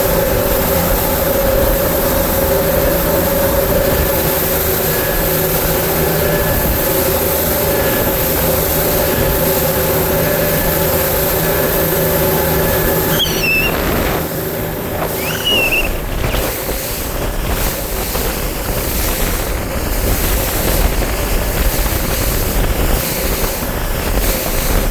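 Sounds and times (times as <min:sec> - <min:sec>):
outboard motor running: 0:00.0 - 0:24.9
short high squeaks: 0:13.0 - 0:14.2, 0:15.0 - 0:16.4.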